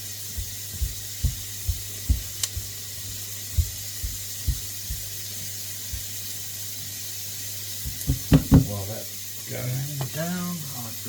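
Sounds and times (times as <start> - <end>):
vegetables sizzling in a wok: 0.0 - 11.0
dull low knocks: 0.4 - 5.2, 7.9 - 8.7.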